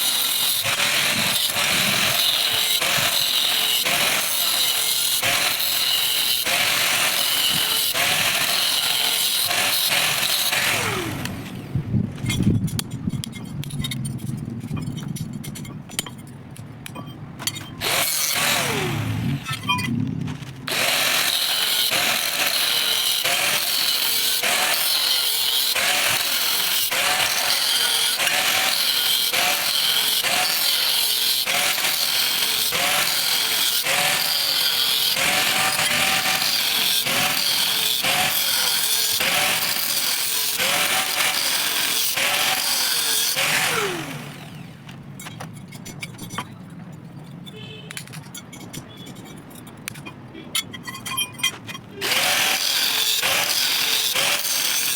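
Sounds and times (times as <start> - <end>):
electric grinder grinding metal: 0.0 - 11.8, 17.8 - 19.6, 20.7 - 44.8, 52.0 - 54.9
clicks and knocks of metal handled: 12.2 - 17.8, 44.9 - 52.0.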